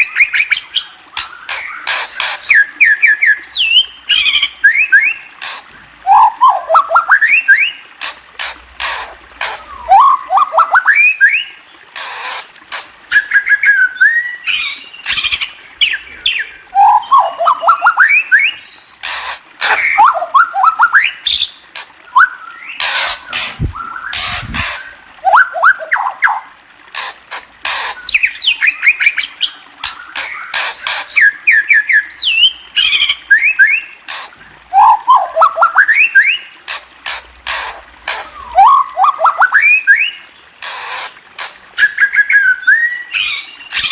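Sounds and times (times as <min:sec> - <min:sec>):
songbird singing: 0:13.1 - 0:19.0, 0:19.7 - 0:26.5, 0:27.8 - 0:33.9, 0:34.7 - 0:36.5, 0:41.8 - 0:43.9.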